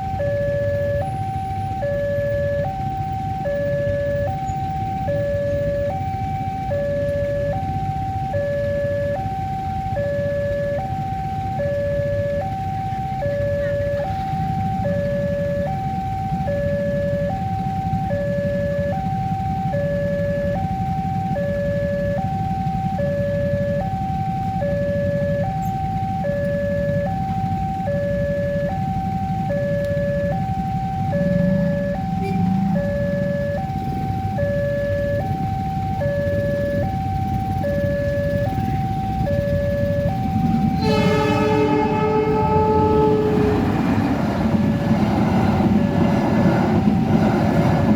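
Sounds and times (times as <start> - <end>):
level crossing alarm two tones: 0.0 - 47.9.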